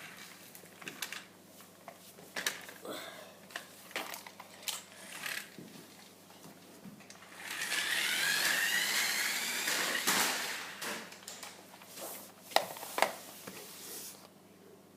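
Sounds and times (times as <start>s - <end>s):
rc car motor whining: 4.9s - 5.6s, 7.3s - 10.8s.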